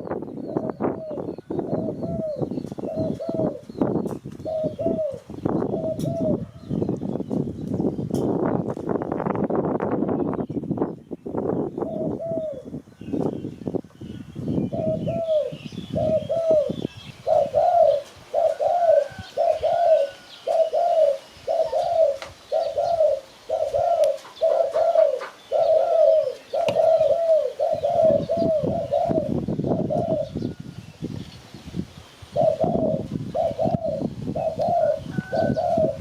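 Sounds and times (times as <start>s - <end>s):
dove cooing: 0.5s - 6.8s, 11.8s - 12.8s, 14.6s - 30.6s, 32.3s - 36.0s.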